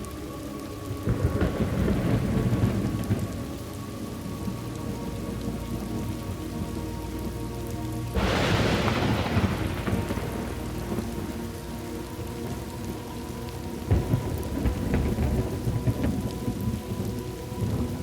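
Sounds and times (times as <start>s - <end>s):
steady rain: 0.0s - 18.0s
low rumble of thunder: 0.8s - 18.0s
sharp thunderclap: 8.2s - 11.5s.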